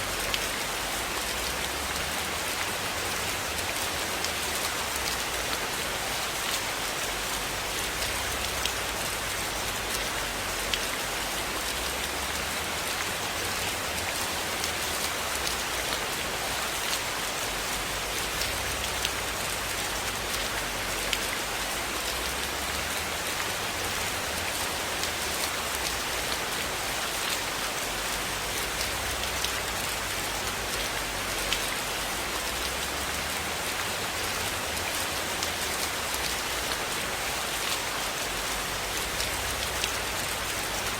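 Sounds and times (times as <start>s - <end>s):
sharp ticks of raindrops: 0.0s - 40.9s.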